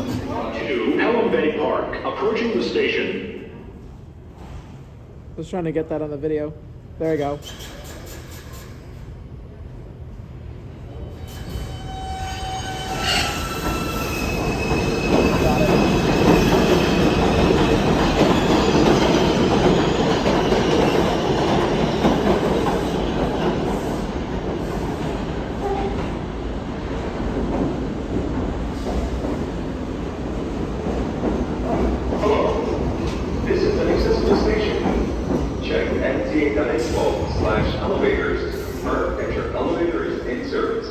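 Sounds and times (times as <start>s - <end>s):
subway train rumbling: 0.0s - 40.9s
train wheels squealing: 7.2s - 9.2s, 10.9s - 23.1s.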